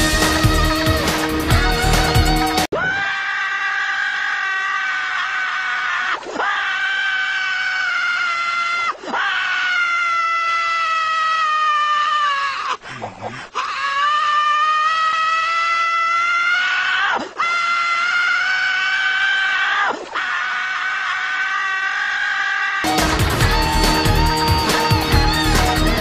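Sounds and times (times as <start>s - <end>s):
cartoon character screaming: 2.8s - 12.8s, 13.7s - 22.9s.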